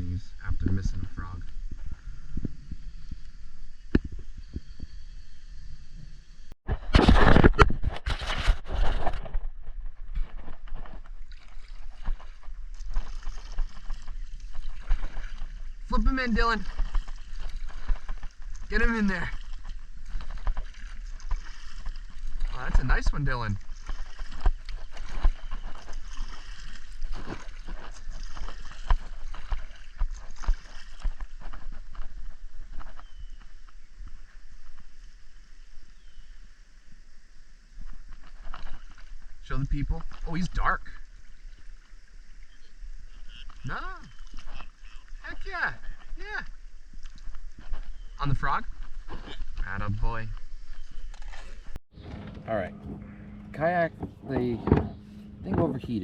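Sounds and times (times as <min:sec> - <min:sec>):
small knocks and scrapes: 0:06.7 - 0:15.6, 0:48.8 - 0:53.0
water splashing around kayak: 0:06.7 - 0:56.0
knocks and bumps against a kayak: 0:52.0 - 0:56.0.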